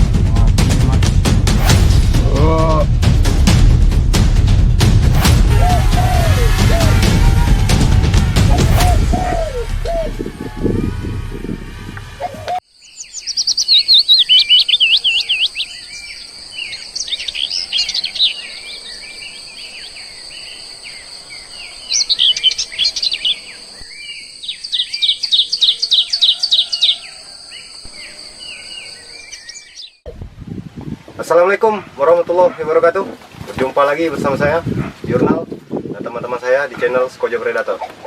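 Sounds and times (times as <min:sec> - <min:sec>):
small birds chirping: 0:12.6 - 0:30.2.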